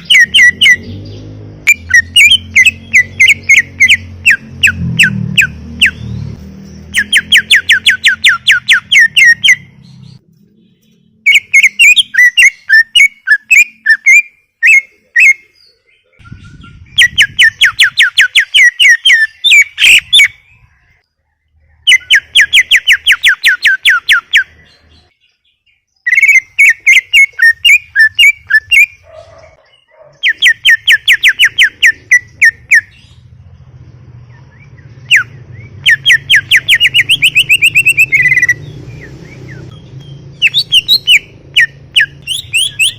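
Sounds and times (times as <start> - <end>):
bird singing sharp chirps: 0.0 - 42.9.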